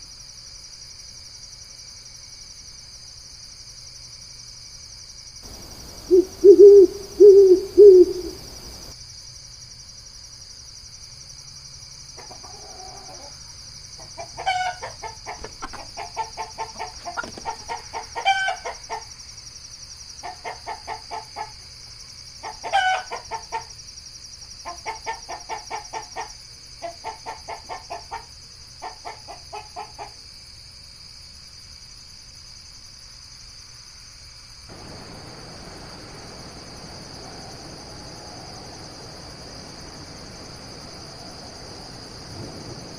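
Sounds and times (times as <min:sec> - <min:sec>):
high insect drone: 0:00.0 - 0:42.9
low bird hoots: 0:05.5 - 0:08.9
rapid rattling bird calls: 0:05.5 - 0:08.9, 0:14.3 - 0:19.0, 0:34.7 - 0:42.9.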